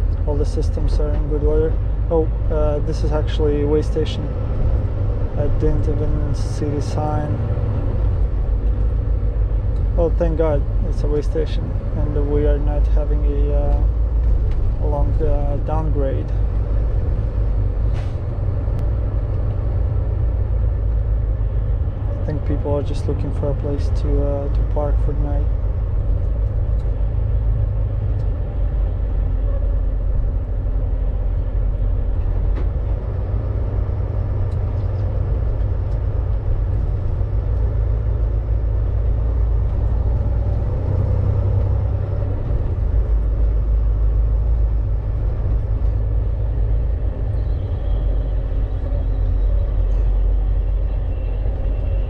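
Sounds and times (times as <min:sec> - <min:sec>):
truck diesel engine rumble: 0:00.0 - 0:52.0.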